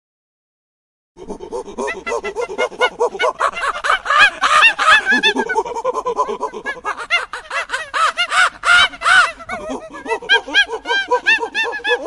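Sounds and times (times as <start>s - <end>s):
flock of birds calling: 3.1s - 5.6s, 6.8s - 12.0s.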